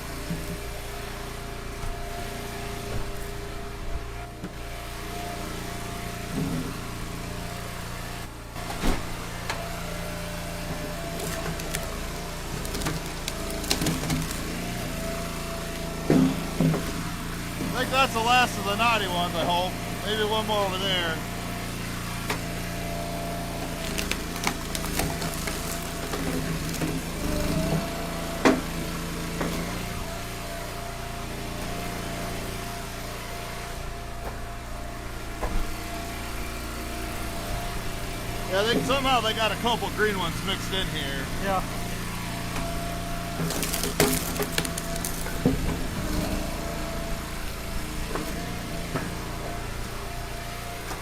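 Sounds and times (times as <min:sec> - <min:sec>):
log splitter engine running: 0:00.0 - 0:51.0
wood cracking and knocking: 0:11.0 - 0:14.7, 0:23.6 - 0:27.3, 0:43.4 - 0:45.8.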